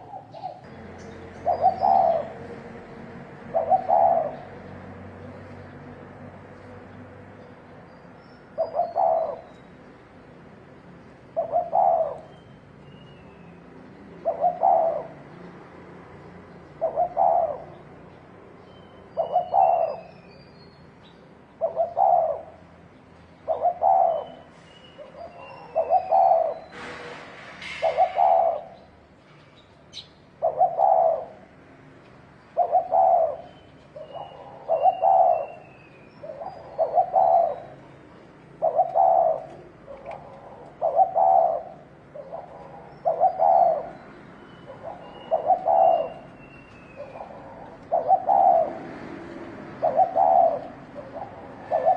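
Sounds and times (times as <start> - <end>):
dove cooing: 0.0 - 2.7, 3.3 - 4.8, 8.5 - 9.6, 11.3 - 12.4, 14.1 - 15.3, 16.7 - 18.0, 19.1 - 20.2, 21.6 - 22.6, 23.4 - 26.9, 27.6 - 28.8, 30.4 - 31.4, 32.6 - 51.9.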